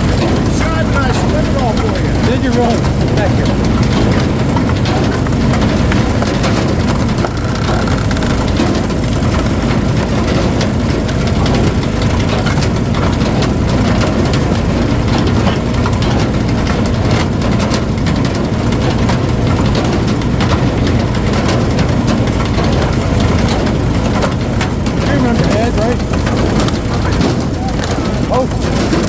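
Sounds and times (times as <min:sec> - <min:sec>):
wood splitter engine running: 0:00.0 - 0:29.0.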